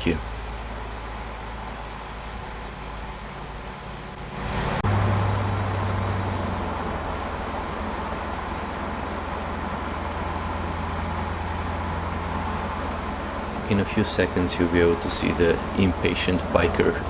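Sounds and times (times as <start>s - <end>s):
car exhaust droning: 0.0s - 1.0s, 12.4s - 17.0s
tyre and road noise: 12.4s - 17.0s.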